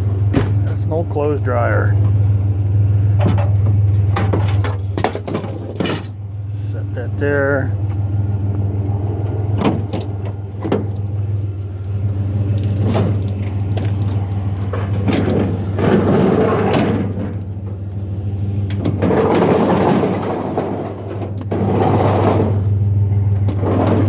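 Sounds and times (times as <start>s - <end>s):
truck engine running: 0.0s - 24.0s
sharp knocks and bangs: 0.3s - 0.8s, 3.2s - 6.2s, 23.4s - 24.0s.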